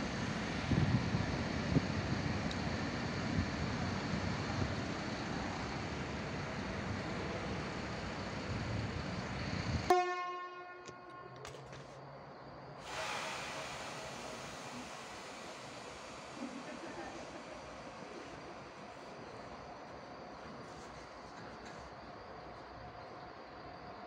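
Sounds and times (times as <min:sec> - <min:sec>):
train rushing noise: 0:00.0 - 0:09.9, 0:10.9 - 0:23.8
train horn: 0:09.9 - 0:11.6, 0:12.8 - 0:14.0
locomotive blowers and motors: 0:12.8 - 0:23.8.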